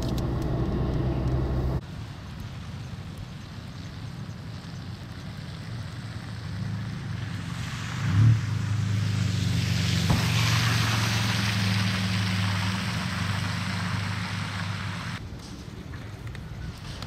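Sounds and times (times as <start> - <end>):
low engine and road hum: 0.0 - 17.0
tyre hiss through snow: 6.1 - 15.2.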